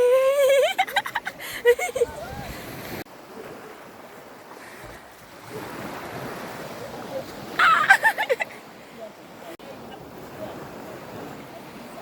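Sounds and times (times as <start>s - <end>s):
sea waves washing on beach: 0.0s - 12.0s
wind buffeting microphone: 1.3s - 7.6s.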